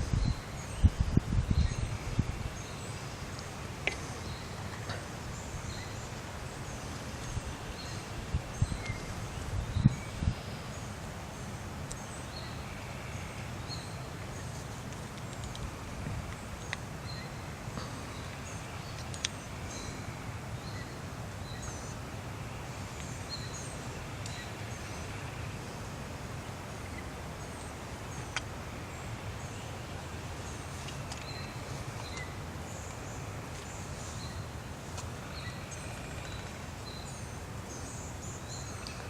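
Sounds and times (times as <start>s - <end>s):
small birds chirping: 0.0s - 25.9s, 26.8s - 39.0s
faint clicks: 14.9s - 15.7s.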